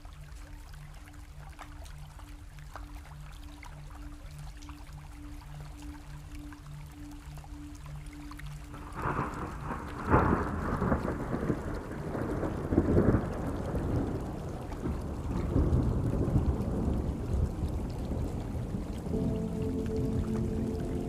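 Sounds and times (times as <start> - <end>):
steady rain: 0.0 - 21.0
rolling thunder: 9.0 - 20.7.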